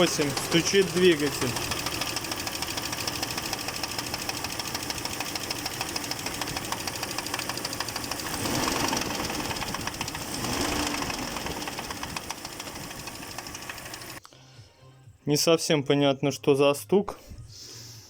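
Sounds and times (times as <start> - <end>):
car engine running: 0.0 - 14.2
fast regular engine knock: 0.0 - 14.2.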